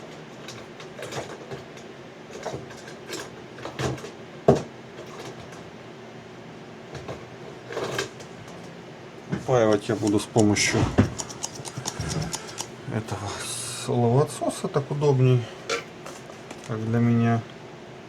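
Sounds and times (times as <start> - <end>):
tools clicking and scraping: 9.7 - 12.8.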